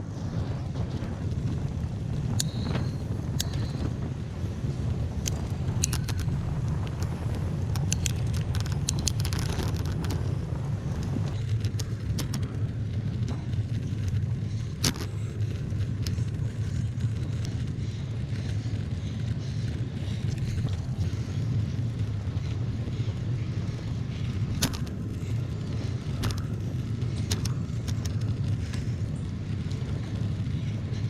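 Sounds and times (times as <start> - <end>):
bicycle tyres on trail: 0.0 - 31.0
wind on microphone: 0.0 - 31.0
sharp clicks and ticks: 0.5 - 31.0.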